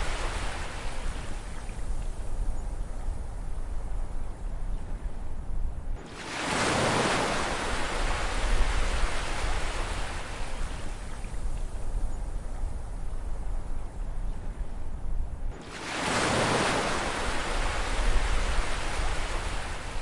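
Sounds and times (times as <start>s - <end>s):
low rumble of surf: 0.0s - 20.0s
wave breaking and washing in: 6.0s - 11.3s, 15.5s - 20.0s.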